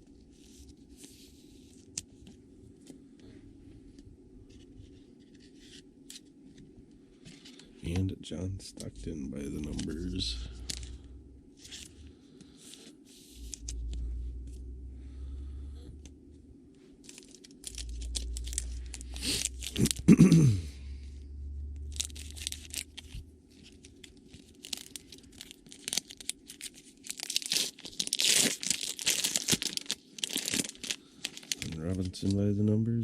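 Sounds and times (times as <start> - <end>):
wrapper tearing and crinkling: 17.0 - 20.1, 21.9 - 32.4.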